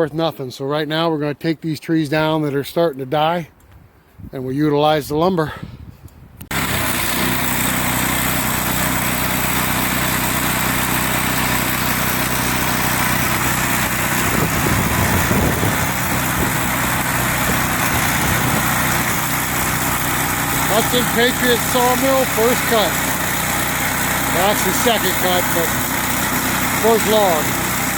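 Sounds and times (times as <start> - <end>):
small gasoline engine running: 6.5 - 27.9.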